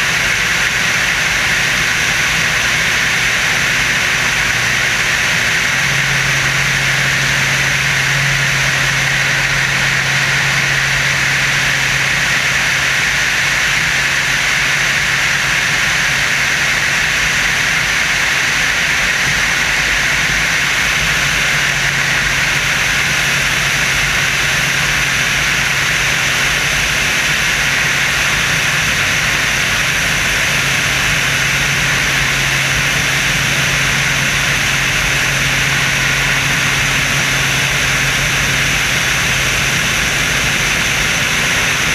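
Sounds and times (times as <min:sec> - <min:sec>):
aircraft engine and wind rush: 0:00.0 - 0:41.9
steady low hum: 0:00.0 - 0:41.9.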